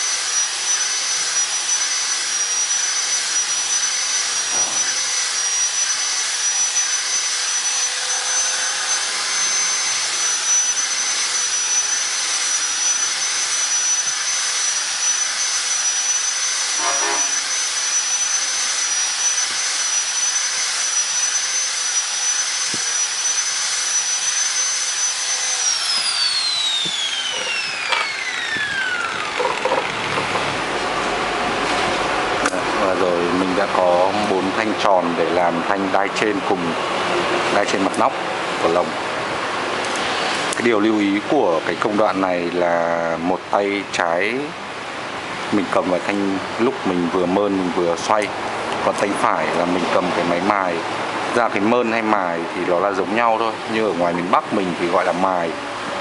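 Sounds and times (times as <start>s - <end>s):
electric grinder whining: 0.0s - 41.2s.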